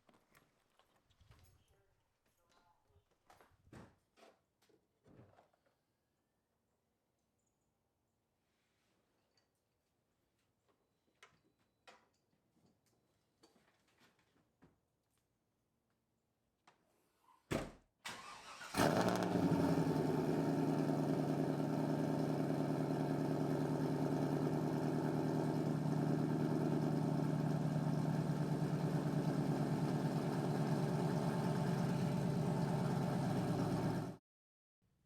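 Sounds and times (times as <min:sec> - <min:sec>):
car engine idling: 0:18.8 - 0:34.2.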